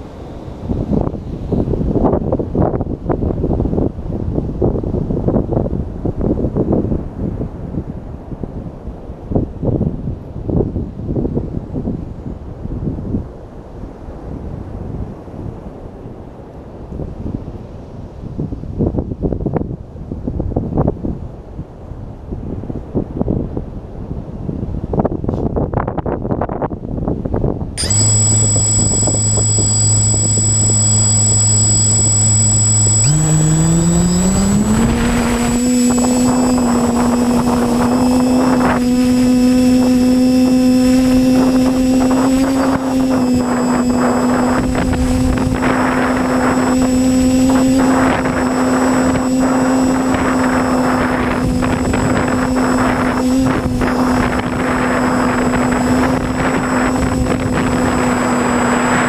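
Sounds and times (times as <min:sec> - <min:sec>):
quadcopter motors humming: 0:27.8 - 0:59.0.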